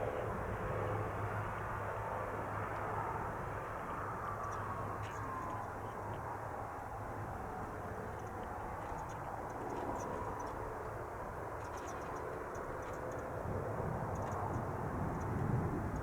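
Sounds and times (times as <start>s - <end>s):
turboprop engine drone: 0.0s - 16.0s.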